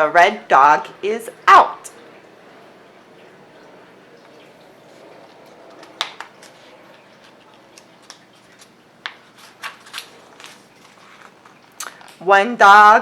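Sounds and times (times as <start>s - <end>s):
book pages turning: 4.8s - 12.2s.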